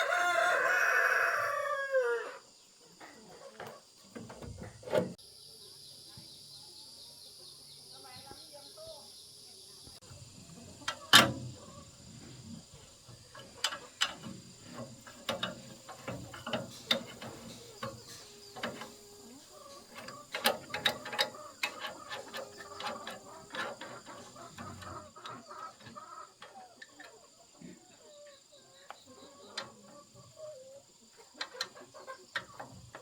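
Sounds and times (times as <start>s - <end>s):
hand tools clicking on metal: 13.4s - 19.0s, 19.9s - 26.5s.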